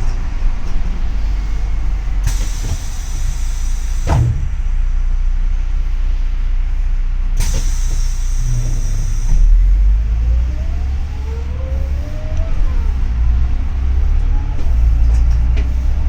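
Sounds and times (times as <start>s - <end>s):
bus engine rumbling: 0.0s - 16.0s
sharp knock: 4.1s - 4.9s.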